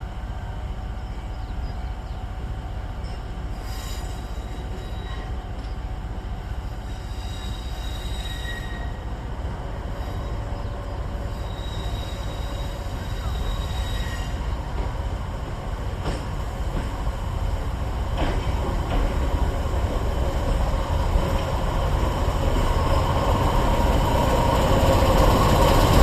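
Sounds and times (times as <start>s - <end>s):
electric train rumbling: 0.0s - 26.0s
high-pitched wheel squeals: 3.0s - 5.4s, 6.9s - 9.1s, 10.0s - 14.5s.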